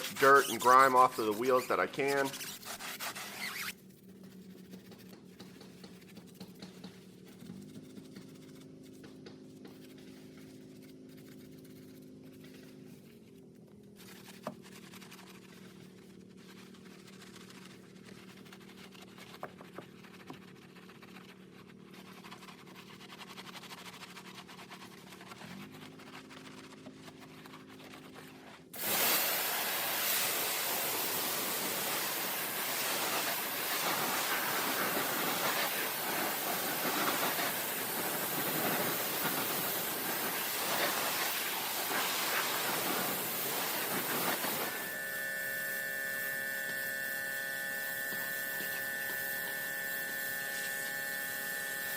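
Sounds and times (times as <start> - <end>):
pressure washer water jet hiss: 28.8 - 51.9
steady whine: 29.7 - 51.9.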